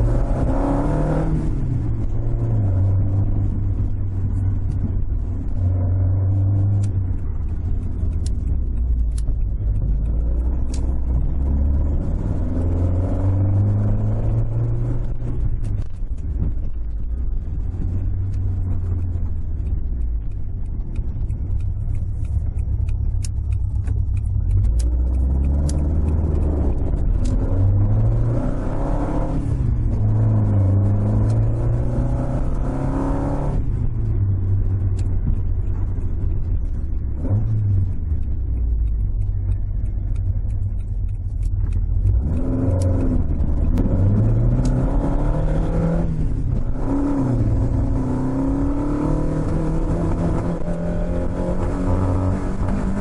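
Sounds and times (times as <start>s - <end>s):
car engine revving: 0.0s - 53.0s.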